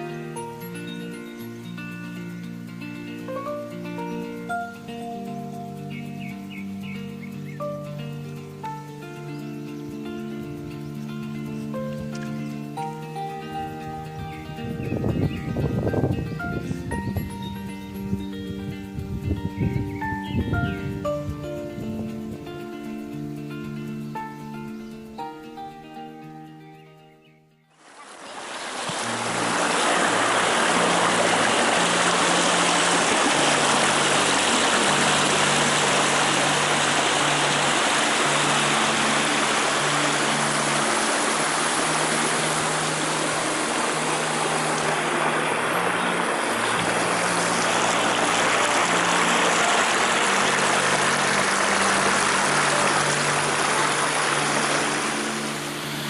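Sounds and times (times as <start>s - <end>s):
low held music notes: 0.0s - 27.6s, 29.0s - 56.0s
waterfall roaring: 27.8s - 56.0s.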